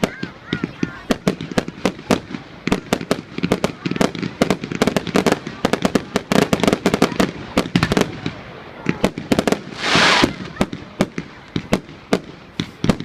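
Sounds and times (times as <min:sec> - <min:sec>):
fireworks cracks and bangs: 0:00.0 - 0:13.0
hissing firework burst: 0:09.3 - 0:11.3.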